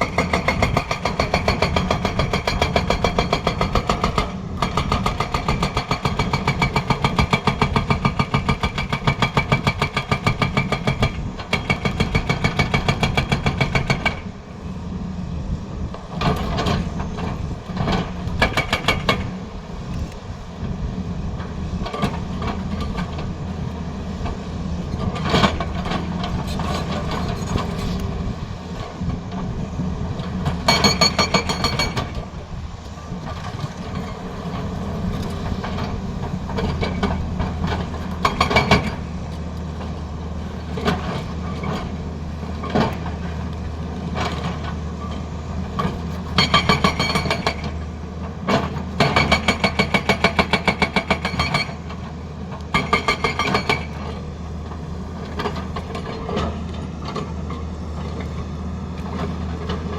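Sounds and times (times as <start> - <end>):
hydraulic breaker hammering: 0.0 - 14.3, 18.3 - 19.4, 30.5 - 32.4
excavator diesel engine running: 0.0 - 59.9.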